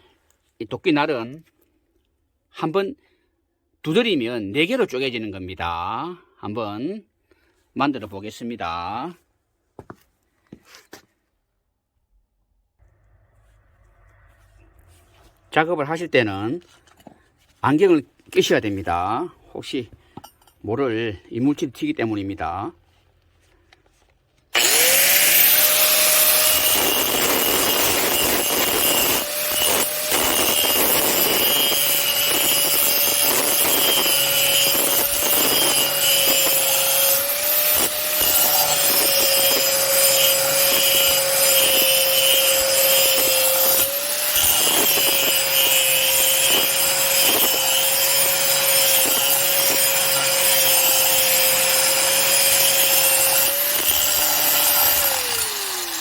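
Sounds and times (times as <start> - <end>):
electric grinder grinding steel: 24.6 - 56.0.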